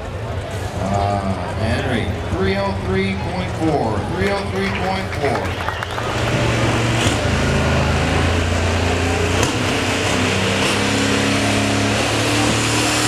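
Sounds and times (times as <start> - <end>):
tractor engine revving: 4.3 - 13.0.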